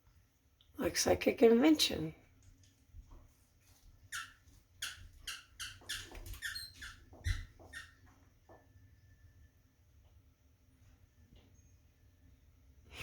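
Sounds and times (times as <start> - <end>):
small bird chirping: 4.1 - 8.0.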